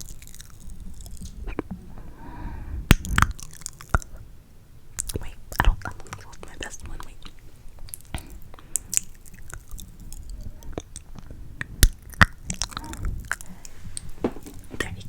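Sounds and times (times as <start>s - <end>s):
wet mouth clicks and smacks: 2.9s - 4.2s, 5.0s - 14.1s.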